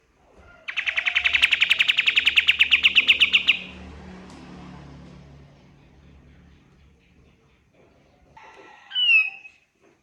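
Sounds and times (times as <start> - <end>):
faint low hum: 0.2 - 8.7
songbird staccato trill: 0.7 - 3.9, 5.3 - 8.4.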